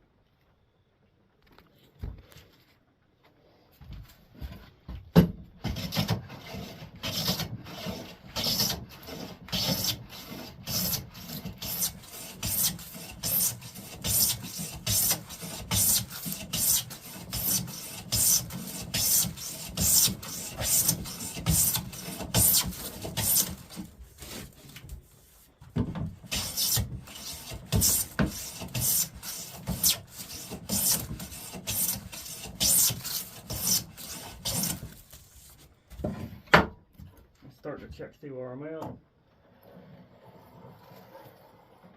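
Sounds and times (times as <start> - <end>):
hand plane rasping on wood: 5.6 - 25.4, 26.2 - 35.5.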